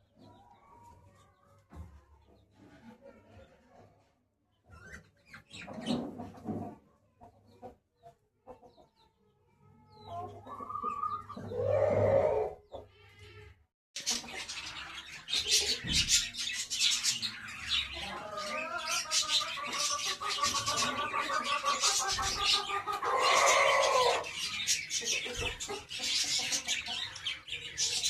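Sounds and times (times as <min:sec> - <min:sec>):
birds calling: 0:10.0 - 0:13.2, 0:14.0 - 0:28.0.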